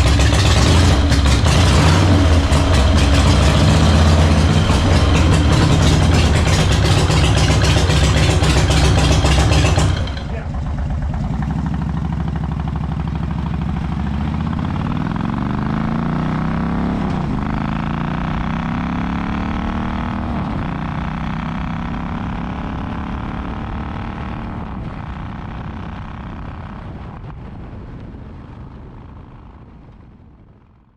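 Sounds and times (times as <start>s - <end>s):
motorcycle engine revving: 0.0s - 27.4s.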